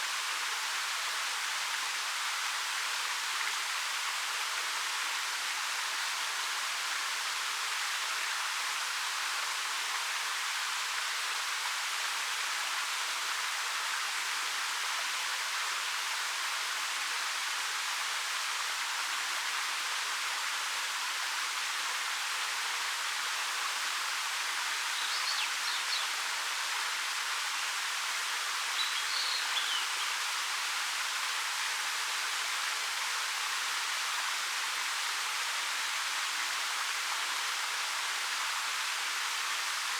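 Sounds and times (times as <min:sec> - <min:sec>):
faint bird chirp: 0:24.9 - 0:26.2, 0:28.8 - 0:30.2.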